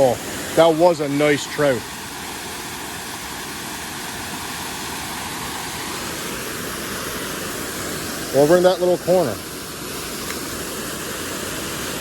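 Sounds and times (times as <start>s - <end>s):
rushing creek water: 0.0s - 12.0s.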